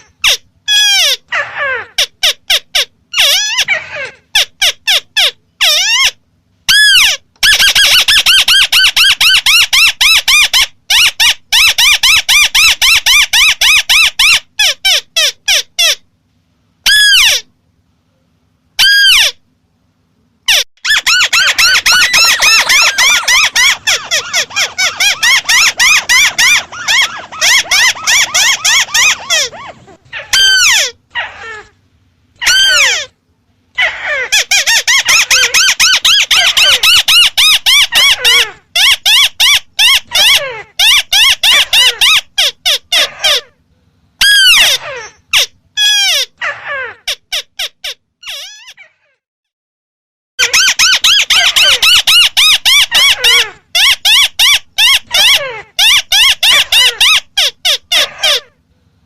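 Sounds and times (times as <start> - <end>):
bird calling in fast runs: 20.8 - 31.4.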